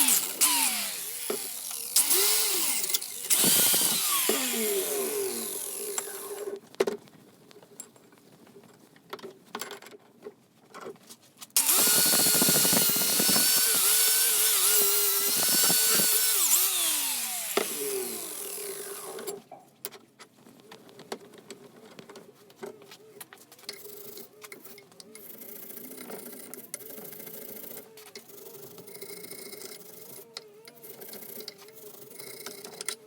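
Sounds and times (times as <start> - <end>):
small power tool whining: 0.0 - 6.6, 11.6 - 19.5.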